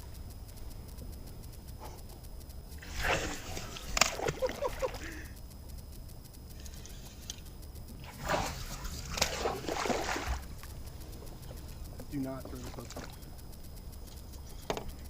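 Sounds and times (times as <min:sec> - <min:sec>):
fish thrashing at water surface: 0:02.8 - 0:05.1, 0:08.0 - 0:10.5
water splashing and sloshing: 0:02.8 - 0:05.1, 0:08.0 - 0:10.6.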